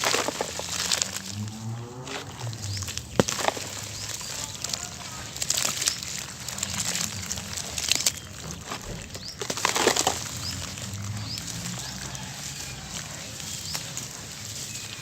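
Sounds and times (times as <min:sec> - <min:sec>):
cement lumps crunching: 0:00.0 - 0:15.0.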